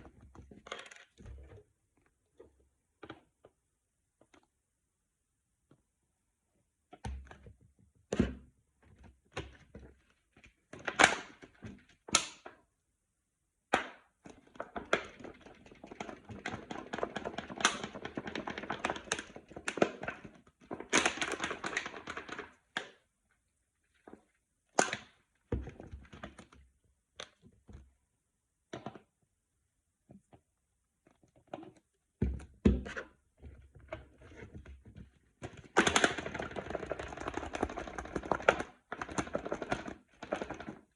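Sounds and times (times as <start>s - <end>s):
plastic bottle rattling: 33.4s - 40.9s.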